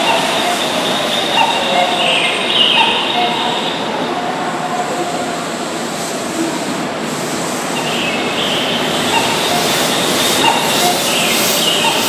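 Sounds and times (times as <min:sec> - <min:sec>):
train wheels rumbling on rails: 0:00.0 - 0:12.0
high wheel squeals: 0:07.8 - 0:12.0.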